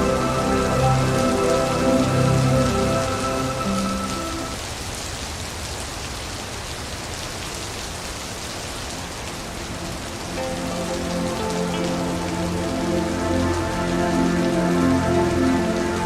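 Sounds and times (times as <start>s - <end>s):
soft sustained musical tones: 0.0s - 4.6s, 9.1s - 16.0s
steady rain falling: 0.0s - 16.0s.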